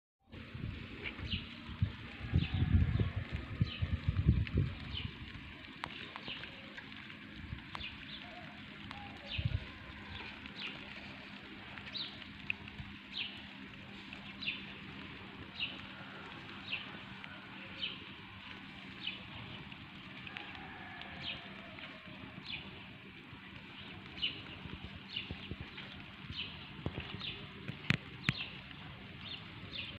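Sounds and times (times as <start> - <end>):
bird chirping: 23.5 - 29.9.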